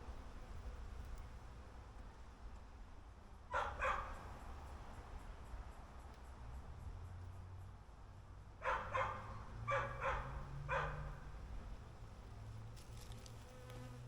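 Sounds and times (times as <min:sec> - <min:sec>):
dog barking: 0:03.5 - 0:04.2, 0:08.6 - 0:11.2
honeybees humming: 0:11.3 - 0:14.0.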